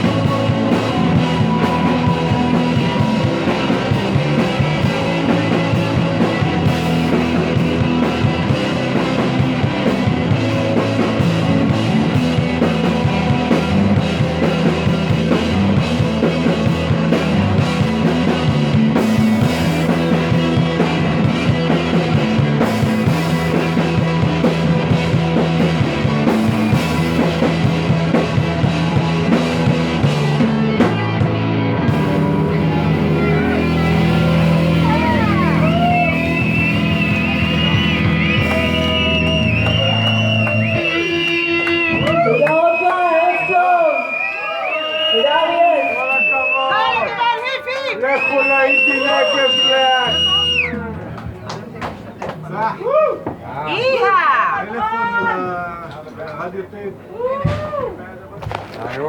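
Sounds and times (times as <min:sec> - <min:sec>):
drum kit with cymbals: 0:00.0 - 0:42.3
rock band playing: 0:00.0 - 0:51.6.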